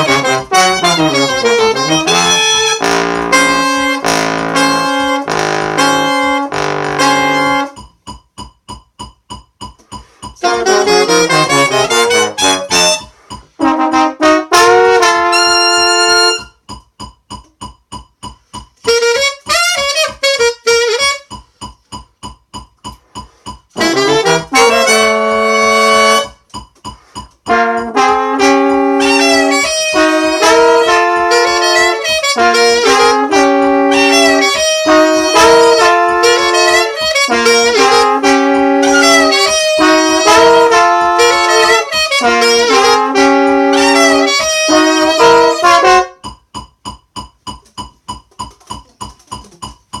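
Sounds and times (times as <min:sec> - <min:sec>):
saxophone and brass chords: 0:00.0 - 0:07.9, 0:10.0 - 0:16.6, 0:18.8 - 0:21.4, 0:23.8 - 0:26.4, 0:27.5 - 0:46.3
steady ticking click track: 0:00.0 - 0:50.0.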